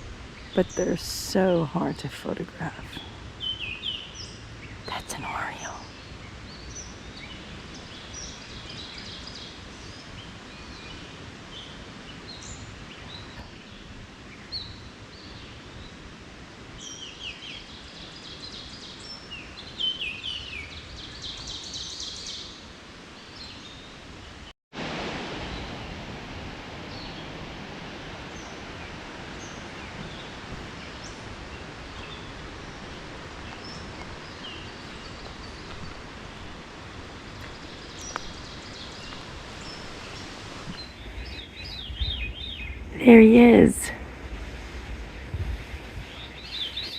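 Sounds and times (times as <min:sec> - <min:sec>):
wind in leaves: 0:00.0 - 0:46.9
birdsong: 0:03.0 - 0:16.0, 0:37.2 - 0:44.0, 0:44.9 - 0:46.9.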